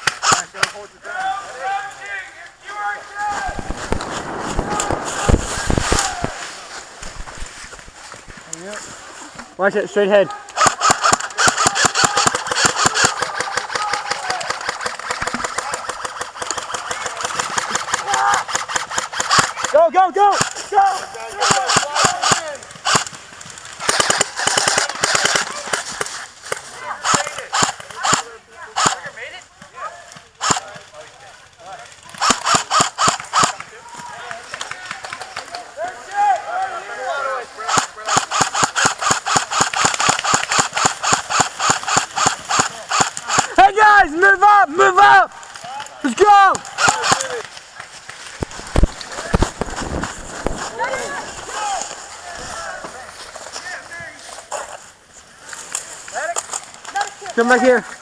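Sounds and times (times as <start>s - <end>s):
airsoft guns firing in bursts: 3.2s - 7.6s, 10.5s - 20.7s, 21.3s - 29.2s, 30.4s - 30.9s, 32.1s - 33.8s, 37.6s - 44.2s, 46.2s - 51.9s.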